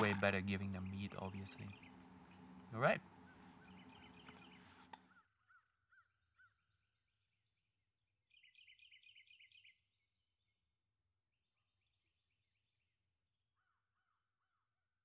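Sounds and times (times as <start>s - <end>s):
small bird chirps: 0.8s - 6.8s, 8.3s - 10.1s.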